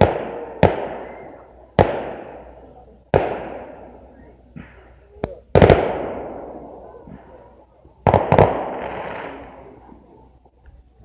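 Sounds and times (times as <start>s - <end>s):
firework shells bursting: 8.0s - 9.8s.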